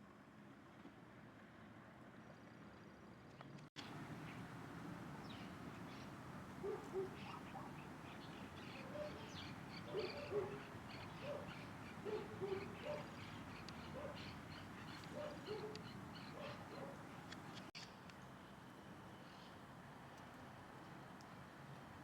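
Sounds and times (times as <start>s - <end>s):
faint high bird chirping: 5.2s - 17.0s
low-pitched bird calls: 5.4s - 17.9s.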